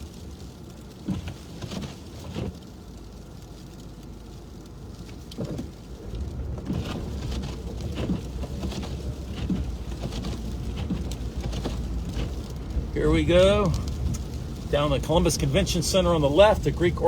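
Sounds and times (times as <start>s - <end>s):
engine and road rumble: 0.0s - 17.0s
sleet ticking on windshield: 3.8s - 17.0s.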